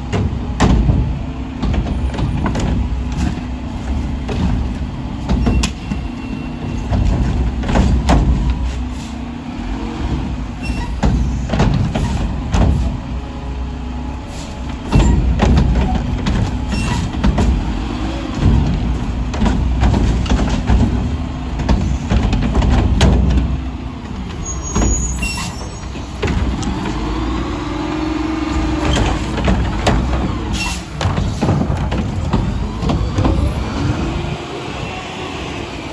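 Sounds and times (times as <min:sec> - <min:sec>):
metal clanks and knocks: 0:00.0 - 0:09.1, 0:10.2 - 0:13.1, 0:14.7 - 0:33.8
garbage truck diesel engine revving: 0:00.0 - 0:35.9
hydraulic whine: 0:24.4 - 0:35.9.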